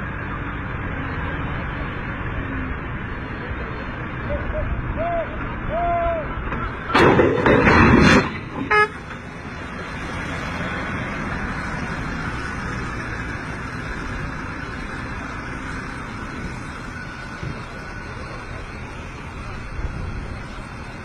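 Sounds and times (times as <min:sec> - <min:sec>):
vehicle engine and road noise: 0:00.0 - 0:21.0
vehicle horn toot: 0:08.6 - 0:09.0.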